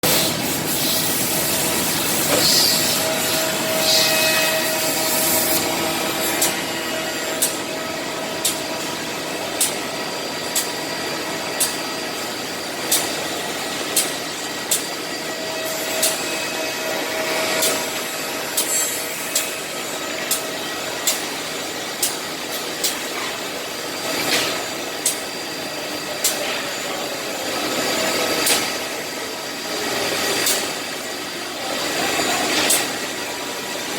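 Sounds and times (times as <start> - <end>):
drilling machine whir: 0.0 - 33.9
sharp machine clicks: 13.9 - 14.9, 20.2 - 21.3, 30.4 - 30.7.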